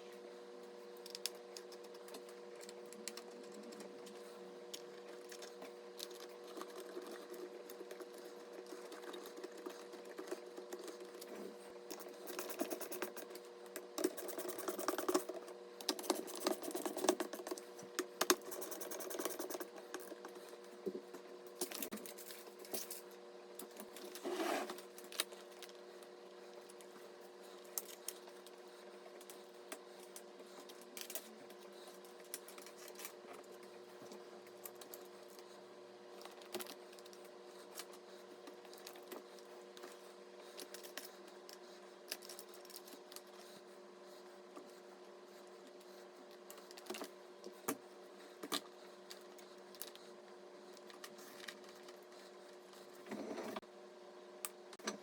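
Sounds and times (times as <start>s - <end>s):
faint hum: 0.0s - 55.0s
computer parts clicking and tapping: 14.0s - 20.2s.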